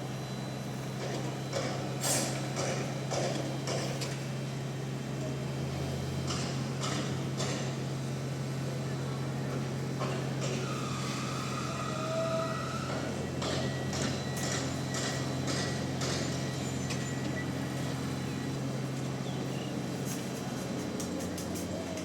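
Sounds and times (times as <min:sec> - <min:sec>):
heavy machinery low drone: 0:00.0 - 0:22.0
knocks and clanks: 0:02.5 - 0:04.2, 0:06.2 - 0:07.8, 0:12.9 - 0:17.0.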